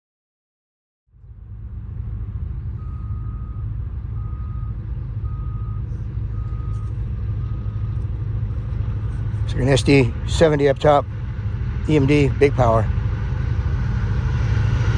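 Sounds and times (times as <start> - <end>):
diesel locomotive rumble: 1.1 - 14.9.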